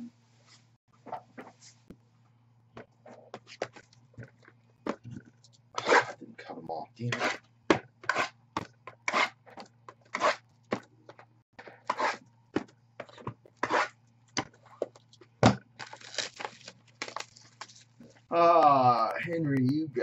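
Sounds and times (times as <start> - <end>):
faint steady hum: 0.0 - 20.0
packaging tearing and rustling: 15.8 - 18.1.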